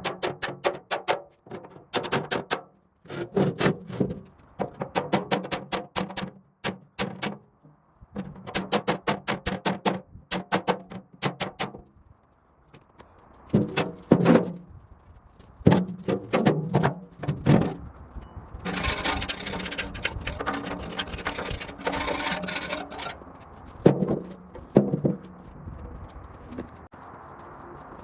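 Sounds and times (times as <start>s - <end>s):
hand tools clicking and knocking: 0.0s - 11.8s, 18.6s - 25.4s.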